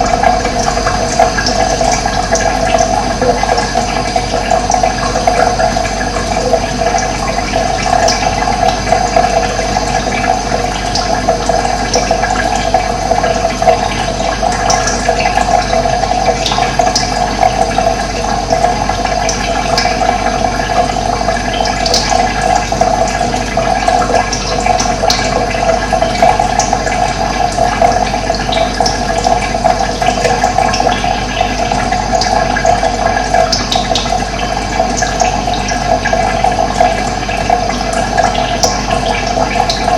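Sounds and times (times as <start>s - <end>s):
water rushing: 0.0s - 17.2s.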